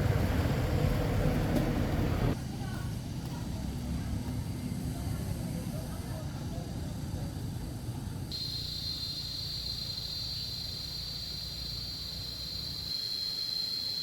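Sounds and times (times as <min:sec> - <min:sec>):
insect trilling: 0:08.4 - 0:14.0.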